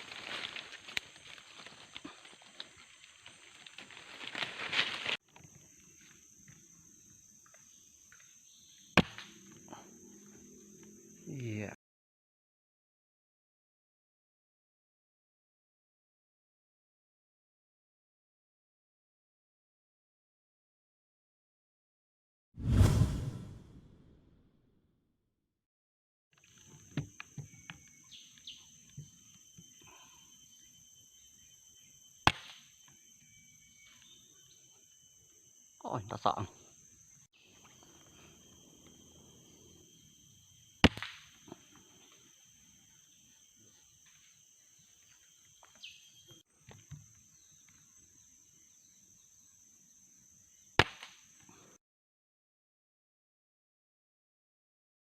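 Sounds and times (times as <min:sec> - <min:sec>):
insects buzzing: 0:00.0 - 0:11.8, 0:26.4 - 0:51.8
bird chirps: 0:27.2 - 0:36.1, 0:42.0 - 0:46.4.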